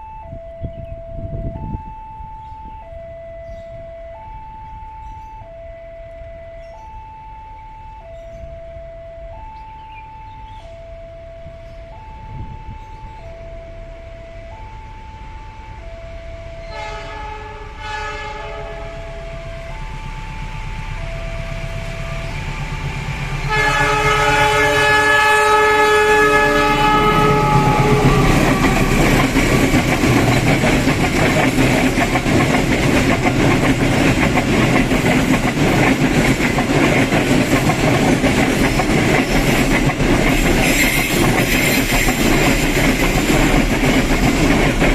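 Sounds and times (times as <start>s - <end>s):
two-tone crossing alarm: 0.0s - 44.9s
train horn blasts: 10.5s - 29.7s
train wheels rumbling on rails: 14.5s - 44.9s.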